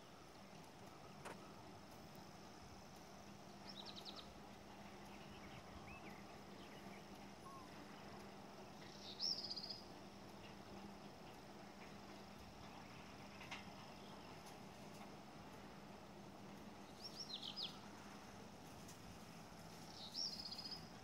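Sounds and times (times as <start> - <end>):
faint low hum: 0.0 - 21.0
bird twittering: 5.1 - 8.1, 8.9 - 9.8, 16.9 - 17.8.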